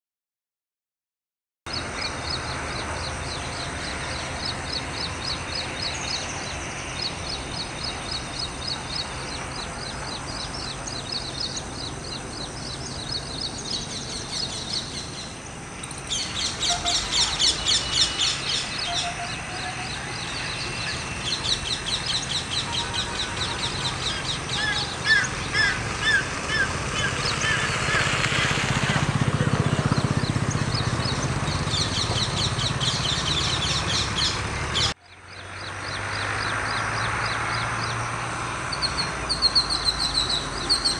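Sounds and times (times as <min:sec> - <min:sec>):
birds chirping: 0:01.7 - 0:29.1, 0:29.7 - 0:40.9.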